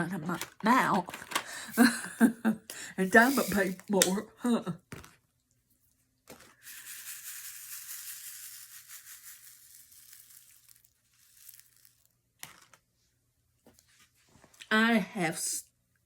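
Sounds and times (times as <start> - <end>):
crinkling rustling of materials: 9.6 - 12.8.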